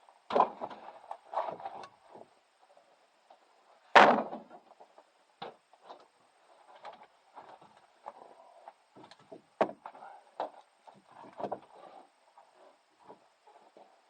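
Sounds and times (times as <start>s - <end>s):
loud wooden impact: 3.9s - 4.6s.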